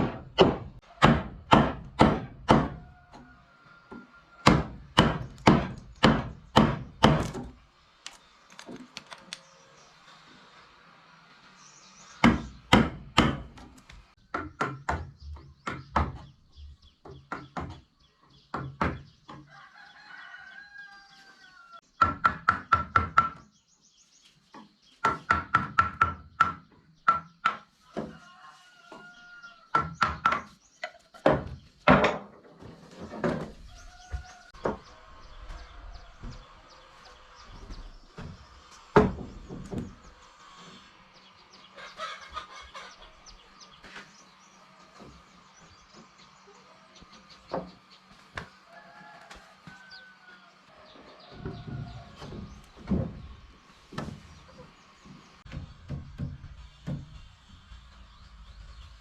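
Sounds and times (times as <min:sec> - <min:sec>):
chickens clucking: 0:26.7 - 0:31.7, 0:32.6 - 0:55.5.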